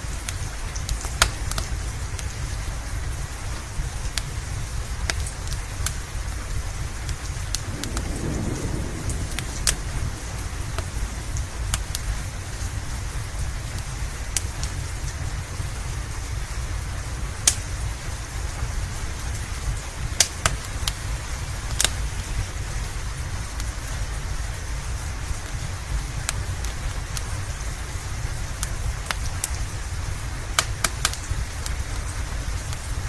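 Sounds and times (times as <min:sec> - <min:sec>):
steady rain: 0:00.0 - 0:33.0
wood fire crackling: 0:00.0 - 0:33.0
low rumble: 0:07.4 - 0:14.3.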